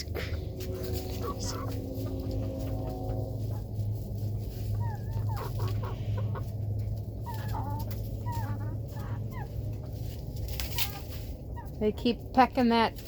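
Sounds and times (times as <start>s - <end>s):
steady low hum: 0.0s - 7.3s
chickens clucking and calling: 0.0s - 13.0s.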